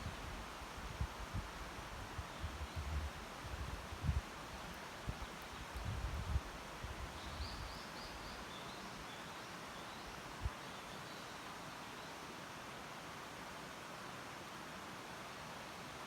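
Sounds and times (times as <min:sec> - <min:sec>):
wind rumble on microphone: 0:00.0 - 0:07.8
steady hiss: 0:00.0 - 0:16.0.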